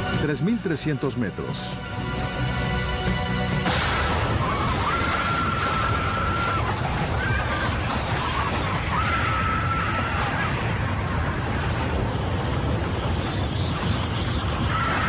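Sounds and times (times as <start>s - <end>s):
sudden blast: 3.6s - 7.1s.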